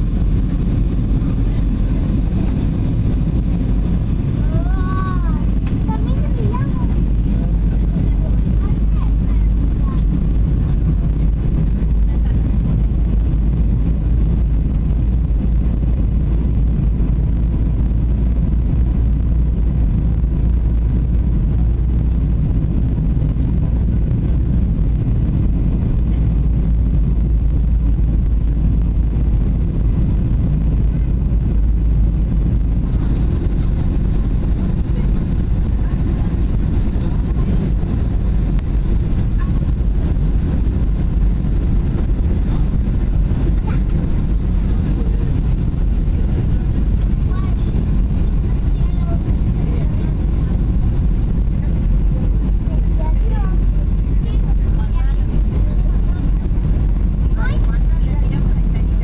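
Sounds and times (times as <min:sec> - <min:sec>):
jet engine cabin rumble: 0:00.0 - 0:59.0.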